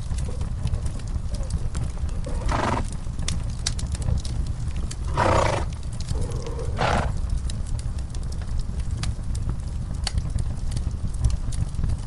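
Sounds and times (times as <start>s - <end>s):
steady low rumble: 0.0s - 12.0s
wood fire crackling: 0.0s - 12.0s
horses snorting: 2.4s - 2.9s, 5.1s - 7.2s.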